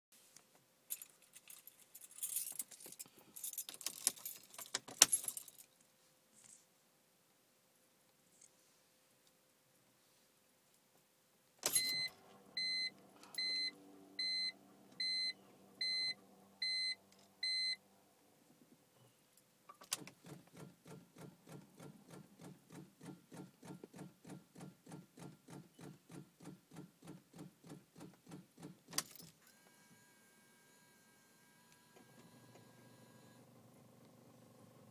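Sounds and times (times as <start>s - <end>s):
car electronic beeps: 11.7s - 17.8s.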